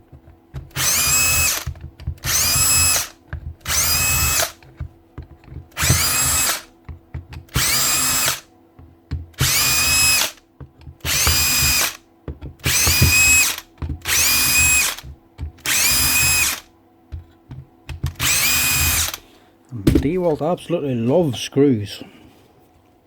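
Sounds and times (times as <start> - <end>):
drill motor whine: 0.8 - 4.6, 5.8 - 6.7, 7.5 - 8.5, 9.4 - 10.4, 11.0 - 12.0, 12.6 - 16.7, 18.2 - 19.3.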